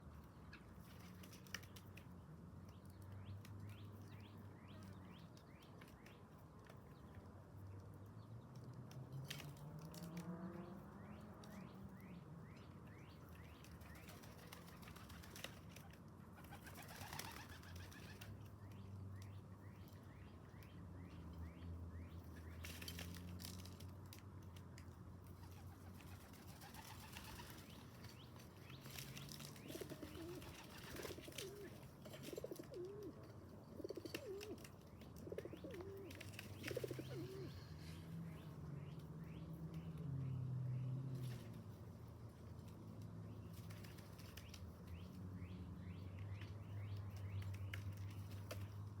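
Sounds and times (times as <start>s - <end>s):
wings flapping: 13.8s - 18.3s, 25.4s - 27.9s, 28.8s - 33.1s
pigeons cooing: 29.6s - 37.7s.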